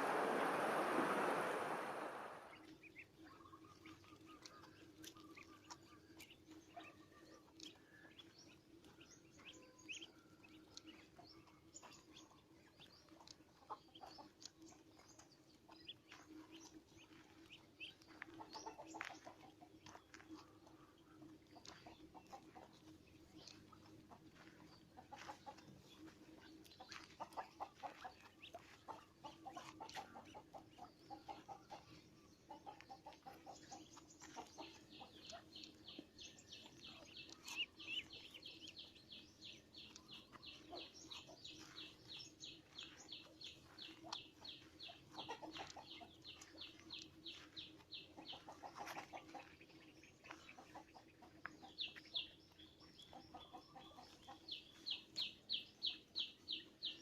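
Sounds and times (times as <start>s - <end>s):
faint steady hum: 0.0s - 4.2s
bird clucking: 13.0s - 38.9s, 39.6s - 57.0s.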